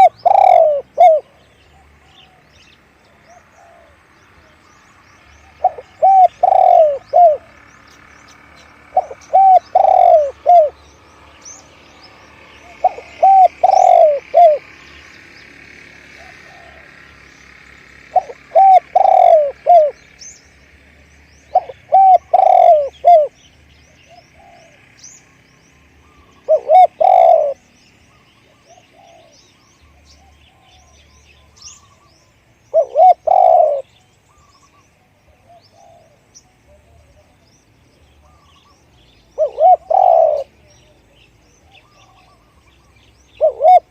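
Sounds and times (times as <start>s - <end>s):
dove cooing: 0.0s - 4.6s, 5.4s - 7.6s, 8.9s - 10.9s, 12.6s - 14.9s, 16.1s - 17.2s, 18.1s - 20.0s, 21.4s - 24.8s, 26.0s - 32.1s, 32.7s - 37.5s, 38.2s - 43.9s
small birds chirping: 0.0s - 43.9s.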